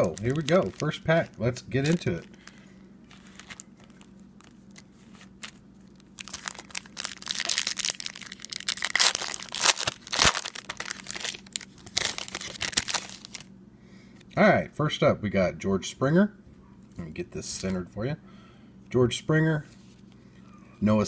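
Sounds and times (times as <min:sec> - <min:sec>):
plastic wrapper tearing and crinkling: 0:00.0 - 0:13.5.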